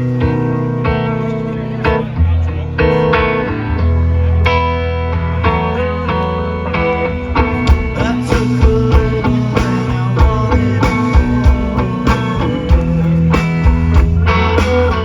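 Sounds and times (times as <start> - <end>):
bass guitar: 0.0 - 15.0
electric guitar: 0.0 - 15.0
steady drum beat: 7.5 - 15.0.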